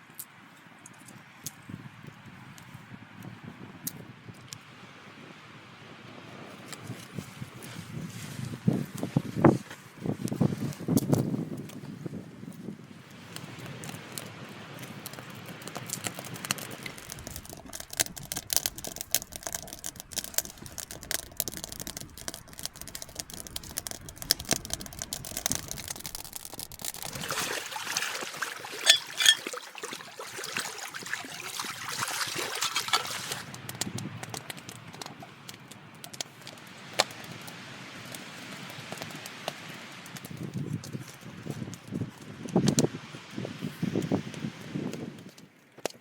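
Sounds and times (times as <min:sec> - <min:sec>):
small clicks and crackles: 0:00.0 - 0:04.6, 0:06.6 - 0:27.5, 0:32.2 - 0:42.9, 0:44.0 - 0:46.0
liquid pouring: 0:17.0 - 0:33.5.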